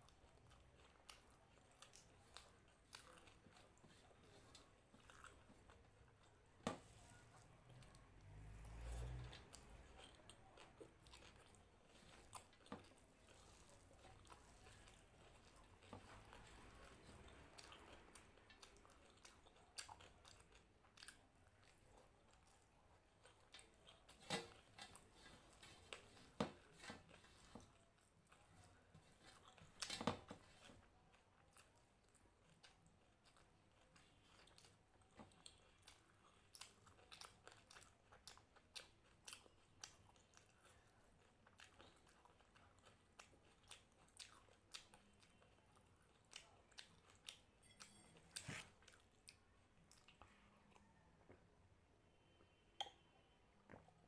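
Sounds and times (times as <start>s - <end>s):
person chewing crunchy food: 0.0s - 51.1s.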